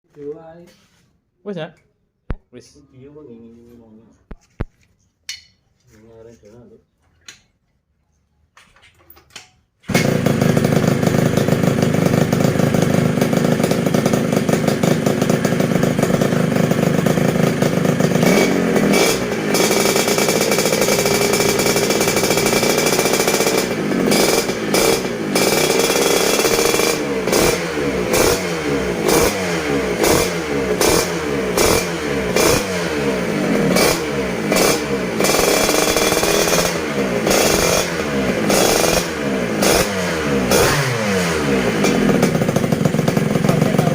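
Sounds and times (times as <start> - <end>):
scooter engine starting and revving: 9.8 - 43.9.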